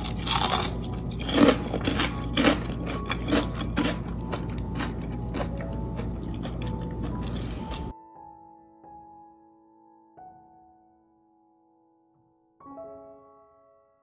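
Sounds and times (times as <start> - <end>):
chewing crispy fried fish: 0.0 - 7.9.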